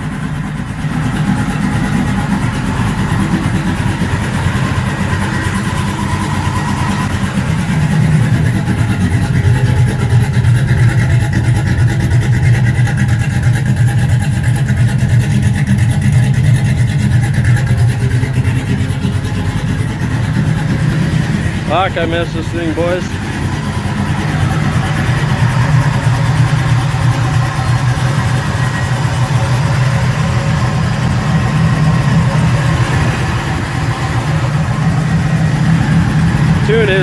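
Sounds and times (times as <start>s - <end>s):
truck engine running rough: 0.0s - 37.0s
man talking: 21.7s - 23.2s, 36.6s - 37.0s.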